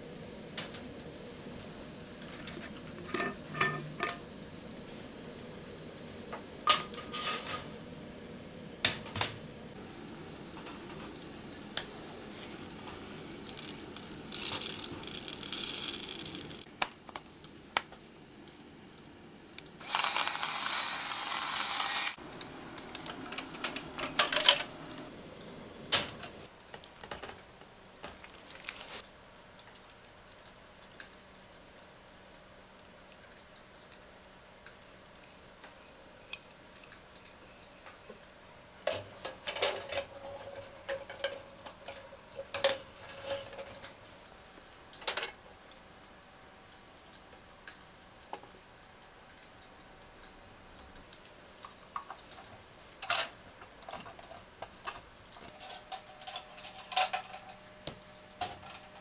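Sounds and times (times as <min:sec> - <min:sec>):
steady hiss: 0:00.0 - 0:26.7
small hard objects clicking: 0:12.9 - 0:16.9.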